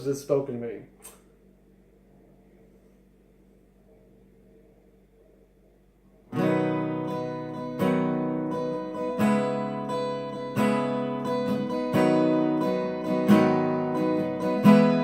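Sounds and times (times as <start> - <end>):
acoustic guitar strummed chords: 6.3 - 15.0.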